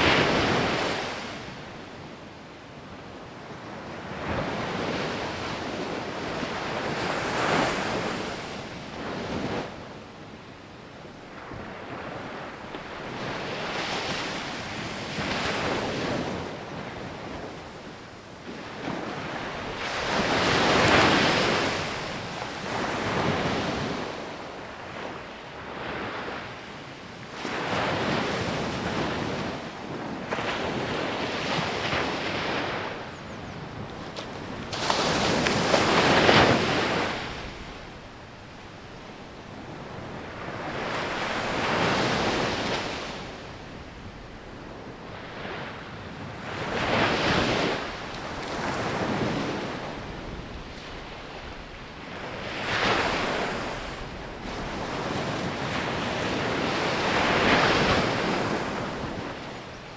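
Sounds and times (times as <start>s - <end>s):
sea waves breaking on beach: 30.2s - 38.0s.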